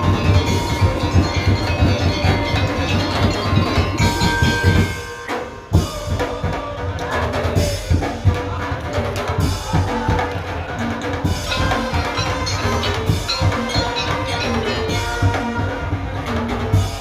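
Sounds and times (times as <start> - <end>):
hard drum hit: 0.0 - 6.6
percussion ensemble playing: 0.0 - 17.0.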